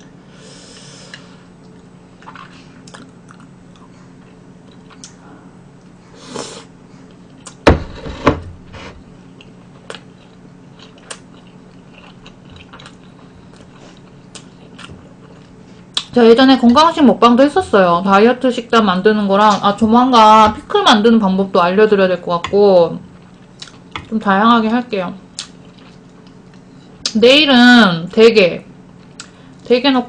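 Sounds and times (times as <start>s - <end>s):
person chewing food: 0.7s - 5.2s, 9.3s - 16.1s, 23.0s - 24.1s, 25.3s - 27.1s
loud thumps: 7.7s - 8.9s.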